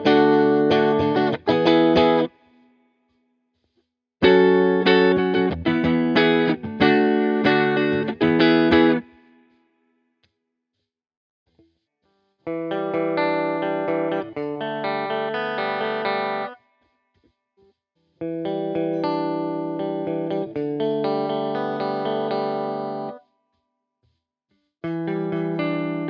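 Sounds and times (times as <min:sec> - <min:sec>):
clean electric guitar strumming chords: 0:00.0 - 0:02.4, 0:04.2 - 0:09.3, 0:12.5 - 0:16.6, 0:18.2 - 0:23.2, 0:24.8 - 0:26.0.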